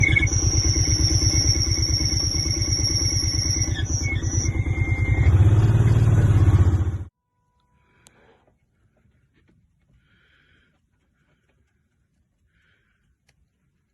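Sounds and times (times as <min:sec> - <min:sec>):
steady whine: 0:00.0 - 0:05.7
utility vehicle engine running: 0:00.0 - 0:07.1.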